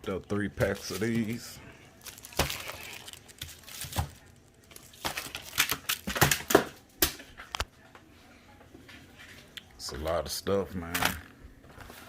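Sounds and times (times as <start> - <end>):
cardboard and plastic crinkling: 0.6 - 6.5.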